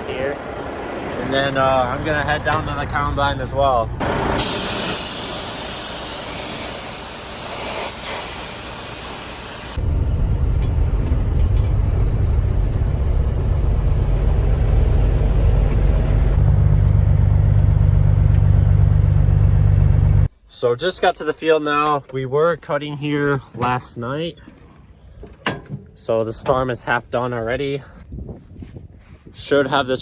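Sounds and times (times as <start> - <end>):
vehicle engine running: 0.0 - 20.3
loud steady hiss: 4.0 - 9.8.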